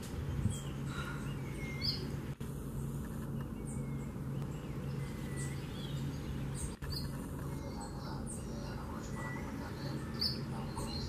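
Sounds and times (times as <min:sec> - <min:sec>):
low background rumble: 0:00.0 - 0:11.0
songbird chirps: 0:00.0 - 0:11.0.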